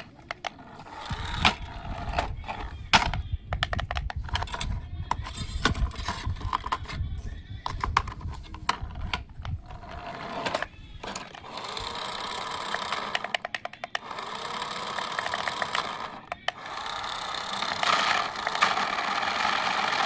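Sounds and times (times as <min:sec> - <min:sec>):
hard parts clattering and knocking: 0:00.0 - 0:20.0
small motor whirring: 0:00.5 - 0:02.8, 0:09.6 - 0:13.3, 0:14.0 - 0:20.0.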